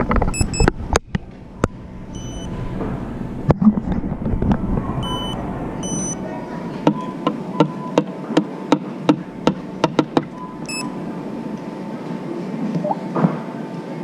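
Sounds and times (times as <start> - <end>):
store background noise: 0.0 - 14.0
short electronic beeps: 0.3 - 0.7, 2.1 - 2.6, 5.0 - 6.2, 10.3 - 11.0.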